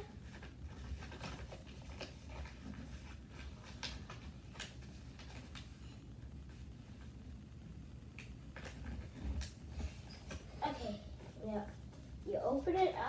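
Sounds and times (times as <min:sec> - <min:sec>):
paper crinkling as folded: 0:00.1 - 0:07.2.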